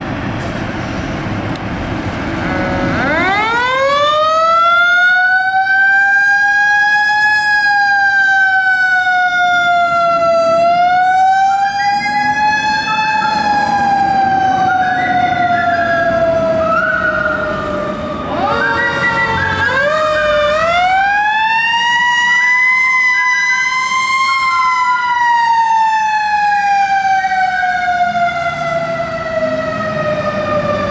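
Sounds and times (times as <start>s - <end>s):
low truck rumble: 0.0s - 5.0s
fire truck siren wailing: 0.0s - 30.9s
stepping siren tone: 2.1s - 30.9s.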